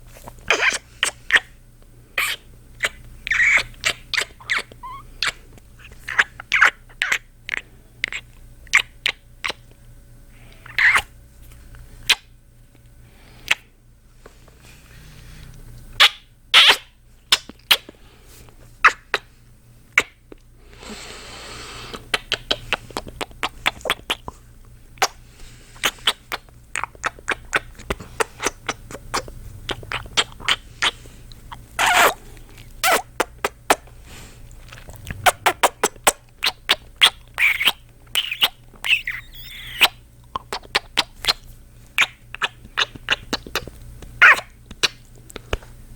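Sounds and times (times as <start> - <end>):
wet kissing and lip-smacking: 0.5 - 1.5, 2.2 - 9.6, 10.6 - 11.1, 16.0 - 17.9, 21.9 - 24.3, 25.8 - 32.2, 32.8 - 33.9, 34.7 - 41.4, 42.0 - 45.7.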